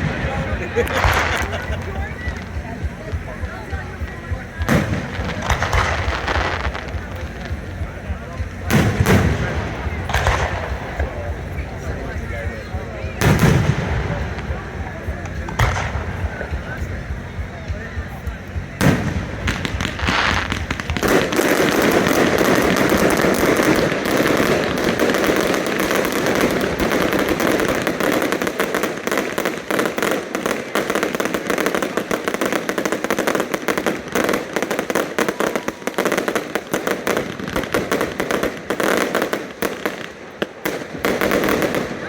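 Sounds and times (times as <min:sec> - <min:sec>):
fireworks bangs and crackles: 0:00.0 - 0:42.0.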